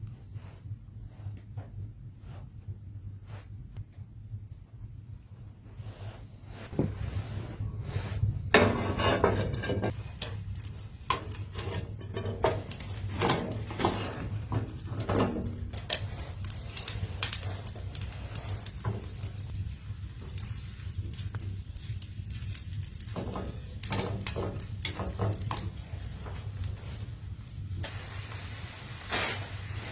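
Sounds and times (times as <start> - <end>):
steady low hum: 0.0 - 23.7.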